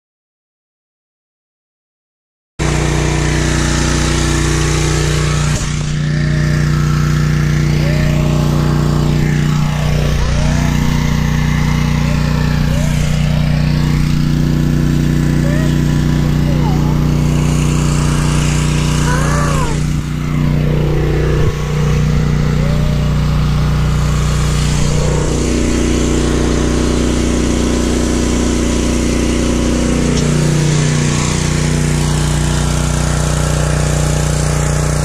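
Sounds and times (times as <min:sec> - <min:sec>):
pressure washer engine running: 0:02.6 - 0:35.0.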